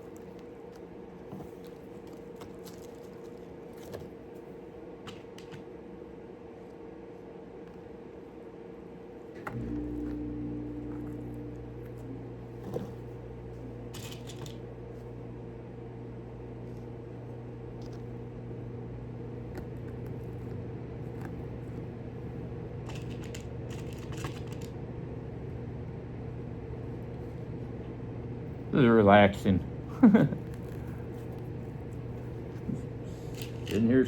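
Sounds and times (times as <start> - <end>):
low electrical hum: 0.0 - 34.0
small parts clicking and rustling: 13.9 - 14.6, 22.9 - 24.7, 33.2 - 34.0.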